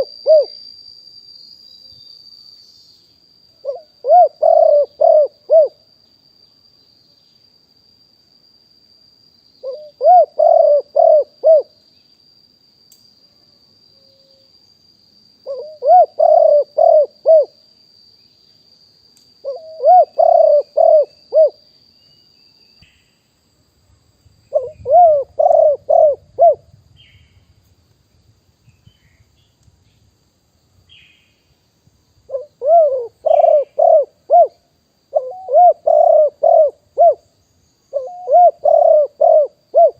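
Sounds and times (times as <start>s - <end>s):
dove cooing: 0.0s - 0.6s, 3.6s - 5.8s, 9.6s - 11.7s, 15.4s - 17.6s, 19.4s - 21.6s, 24.5s - 26.7s, 32.3s - 37.2s, 37.9s - 39.9s.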